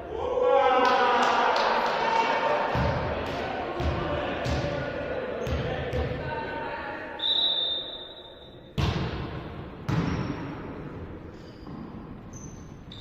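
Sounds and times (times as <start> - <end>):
volleyball hits echoing: 2.6 - 6.3, 8.7 - 12.1
referee whistle blowing: 7.2 - 8.8.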